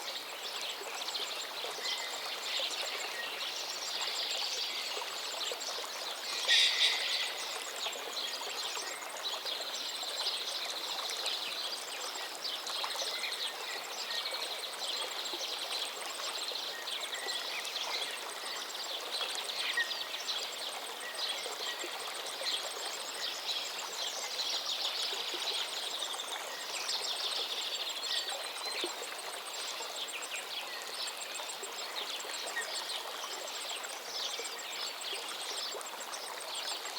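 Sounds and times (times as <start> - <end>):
river stream flowing: 0.0 - 36.9
birds chirping: 6.2 - 7.7.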